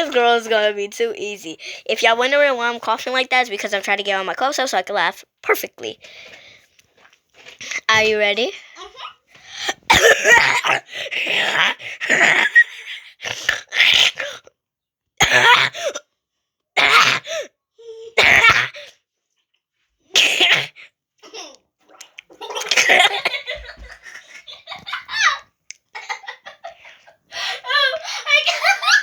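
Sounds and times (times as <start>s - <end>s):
girl coughing and sputtering: 8.8s - 14.4s, 15.2s - 16.1s, 16.8s - 19.0s, 20.1s - 21.6s, 22.4s - 25.2s
girl laughing with gargling: 9.9s - 12.9s, 21.2s - 29.0s.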